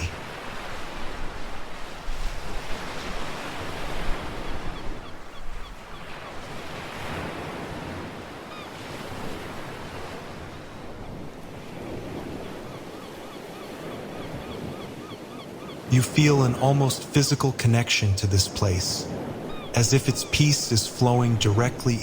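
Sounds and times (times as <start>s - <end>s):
ocean waves washing ashore: 0.0s - 22.0s.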